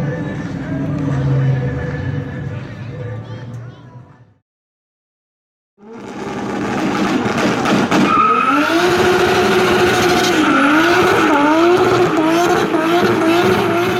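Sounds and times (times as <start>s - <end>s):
car engine revving high: 5.8s - 13.9s
tyres squealing: 8.0s - 13.9s.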